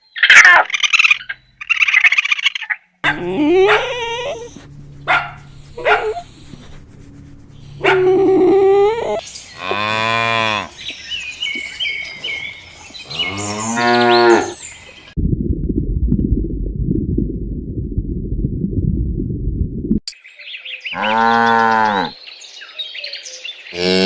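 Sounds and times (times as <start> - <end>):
steady low rumble: 3.0 - 9.2, 15.1 - 20.0
cattle mooing: 3.0 - 10.7, 13.1 - 14.6, 21.0 - 22.2.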